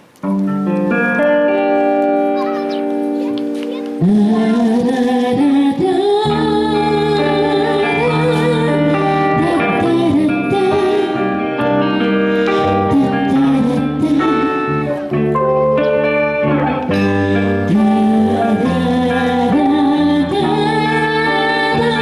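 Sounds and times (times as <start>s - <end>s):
live band playing pop music: 6.3s - 22.0s.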